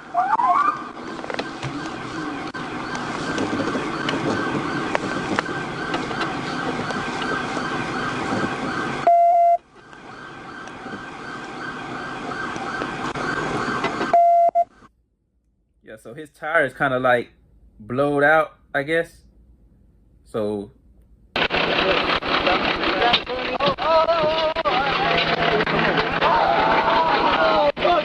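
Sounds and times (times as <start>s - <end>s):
loud steady beep: 0.0s - 1.0s, 9.0s - 9.6s, 14.1s - 14.7s
police siren: 0.0s - 14.8s, 21.4s - 28.0s
road and engine noise: 0.0s - 14.9s, 21.4s - 28.0s.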